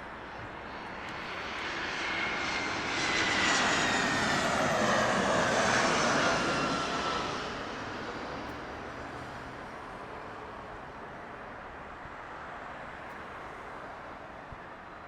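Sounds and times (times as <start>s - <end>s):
jet airliner passing: 0.1s - 10.7s.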